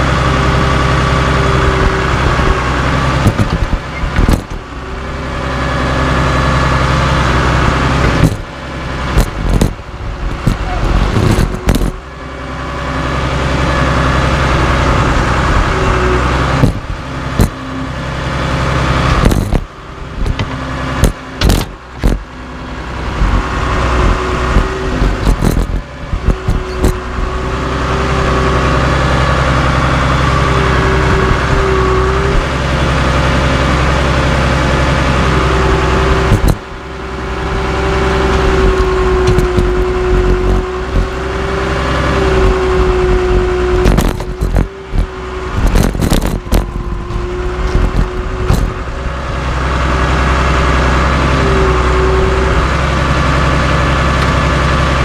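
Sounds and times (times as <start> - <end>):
bulldozer diesel engine: 0.0 - 55.0
metal clanks and knocks: 20.2 - 22.2.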